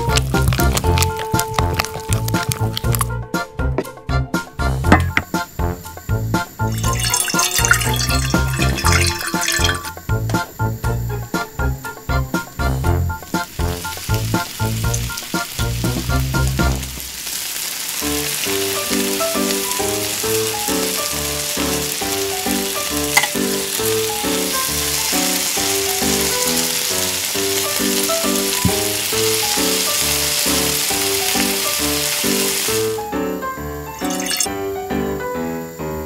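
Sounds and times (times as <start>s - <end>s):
oil sizzling deep frying: 0.0s - 36.0s
light melodic background music: 18.2s - 35.8s.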